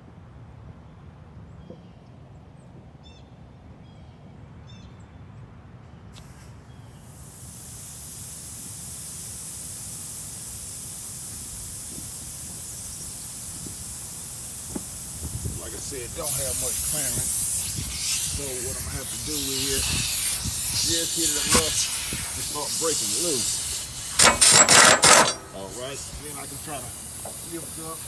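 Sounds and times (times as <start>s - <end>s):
compressed air hissing: 6.2s - 28.0s.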